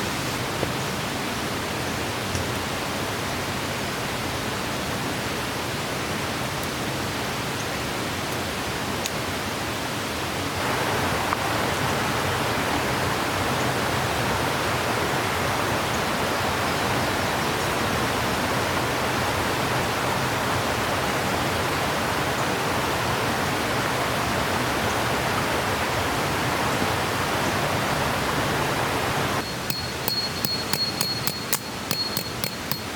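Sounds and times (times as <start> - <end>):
water rushing: 9.4 - 29.4.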